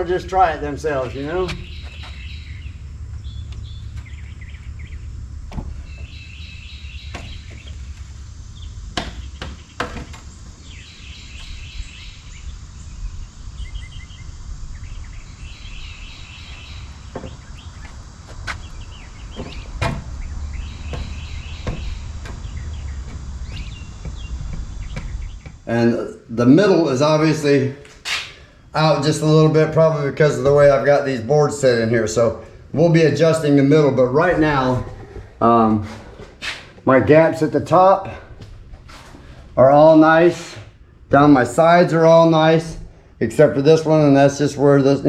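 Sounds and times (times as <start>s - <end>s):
steady low rumble: 0.0s - 44.7s
birds chirping: 0.0s - 45.0s
knocks on wooden door: 20.9s - 25.6s.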